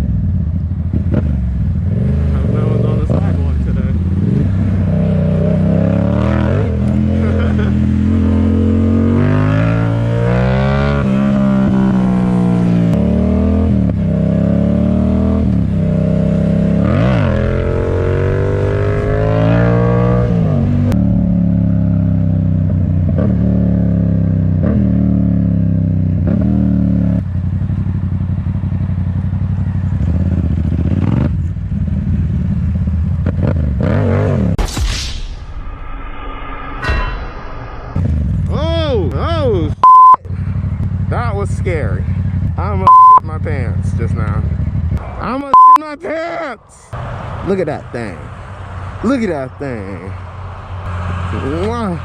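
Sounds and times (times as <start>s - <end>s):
motorcycle engine accelerating: 0.0s - 34.6s.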